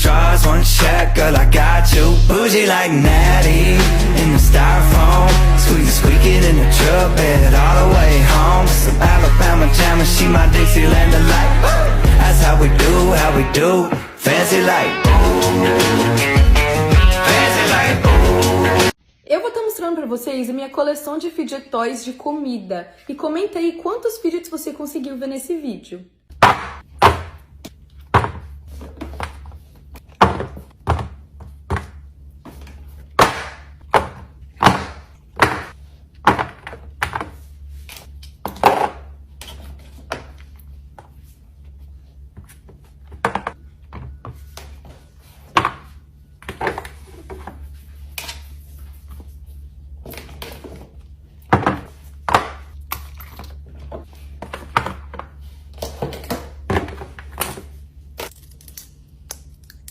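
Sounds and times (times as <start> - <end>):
low hum: 0.0 - 15.9.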